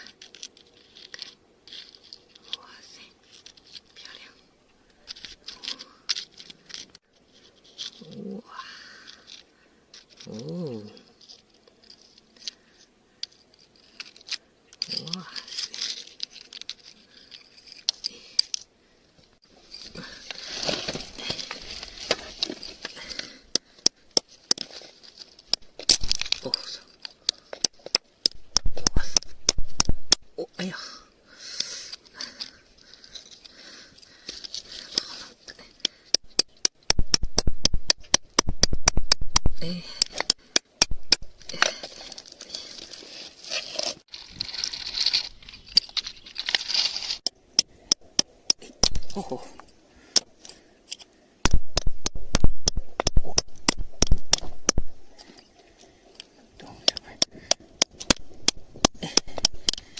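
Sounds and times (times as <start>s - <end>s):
hands digging through soil: 19.6s - 23.4s
hands scraping through soil: 19.6s - 23.4s, 41.4s - 47.3s.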